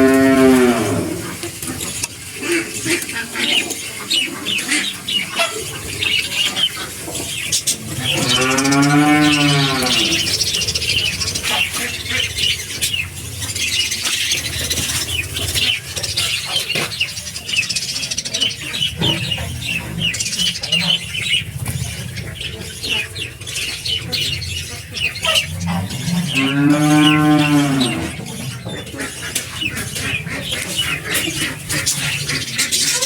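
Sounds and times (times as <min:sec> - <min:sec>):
cow mooing: 0:00.0 - 0:01.3, 0:08.1 - 0:10.3, 0:25.6 - 0:28.3
budgerigars chirping: 0:00.1 - 0:33.0.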